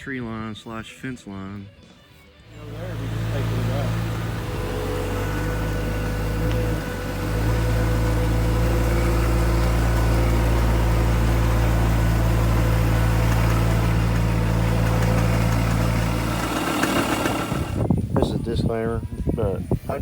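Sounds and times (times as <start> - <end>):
engine idling: 2.5 - 18.1.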